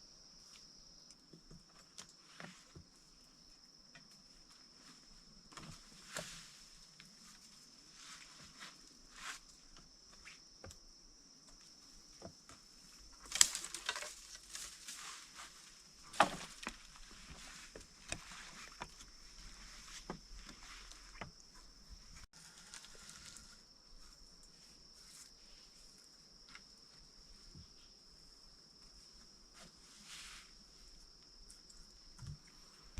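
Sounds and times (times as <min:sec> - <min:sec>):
insects droning: 0:00.0 - 0:32.9
knocks and rustles: 0:12.1 - 0:22.3.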